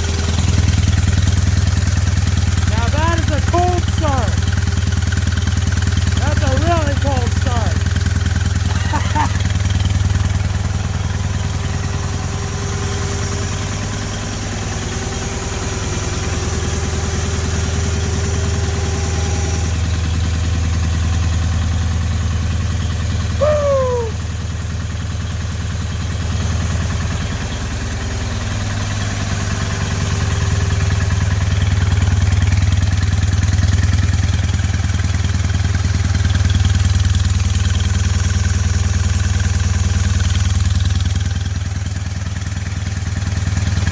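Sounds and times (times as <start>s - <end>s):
engine running steadily: 0.0s - 43.9s.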